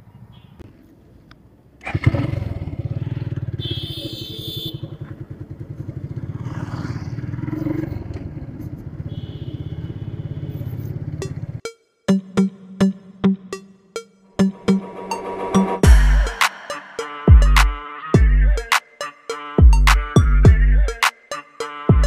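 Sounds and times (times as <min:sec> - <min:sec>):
motorcycle engine running: 0:01.8 - 0:11.6.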